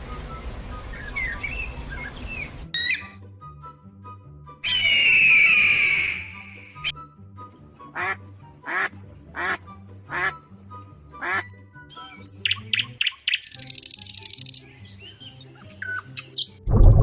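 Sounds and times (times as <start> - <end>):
background music: 0.0 - 17.0
duck quacking: 7.9 - 10.4, 11.2 - 11.5.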